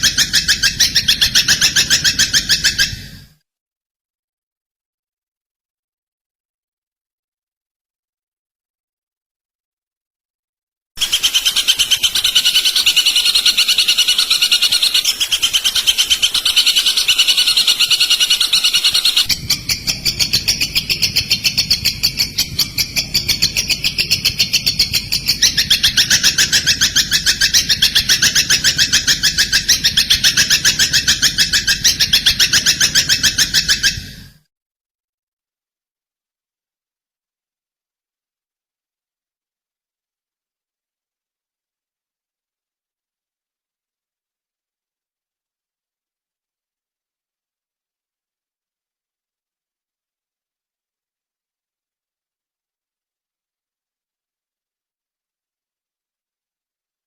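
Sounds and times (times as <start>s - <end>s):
rapid high bird chirping: 0.0s - 3.2s, 11.0s - 34.3s.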